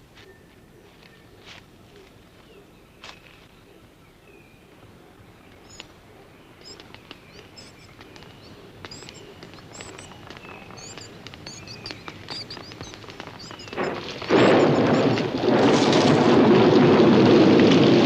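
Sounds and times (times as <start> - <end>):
sharp clicks: 5.7 - 6.0, 6.6 - 15.3.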